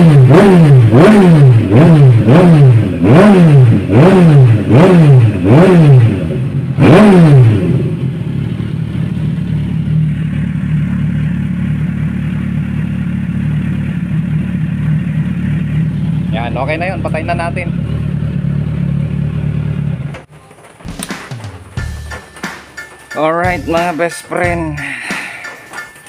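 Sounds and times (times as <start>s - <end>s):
motorcycle engine revving: 0.0s - 22.1s
motorcycle engine idling: 7.5s - 22.4s.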